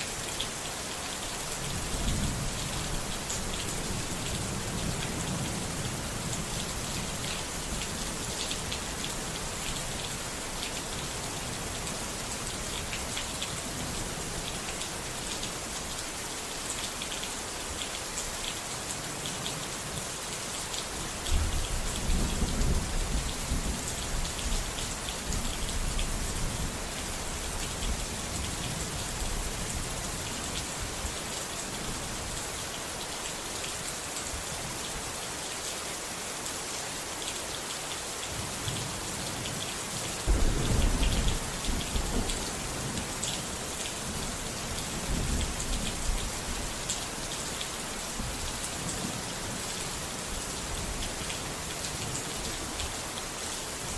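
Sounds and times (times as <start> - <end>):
steady rain falling: 0.0 - 53.9
rolling thunder rumbles: 40.3 - 42.9.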